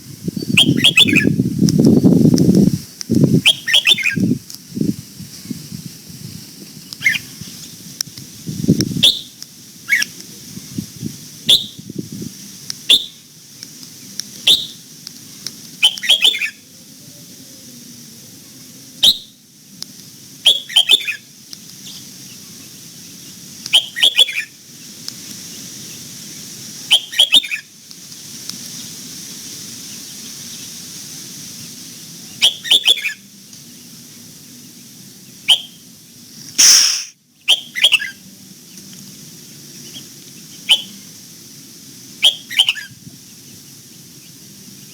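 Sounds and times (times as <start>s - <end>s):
steady high hiss: 0.0s - 44.9s
bird singing sharp phrases: 0.4s - 1.4s, 36.6s - 38.2s.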